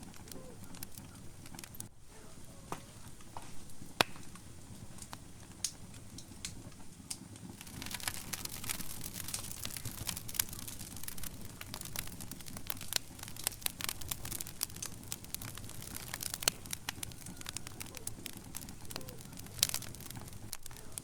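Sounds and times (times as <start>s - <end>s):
low rumble of flames: 0.0s - 21.0s
wood fire crackling and popping: 0.0s - 21.0s.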